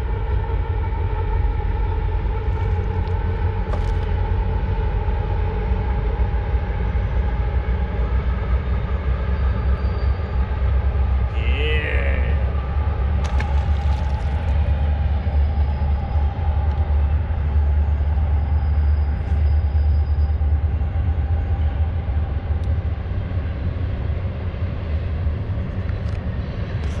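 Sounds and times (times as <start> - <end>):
freight train rumbling on bridge: 14.8 - 26.8.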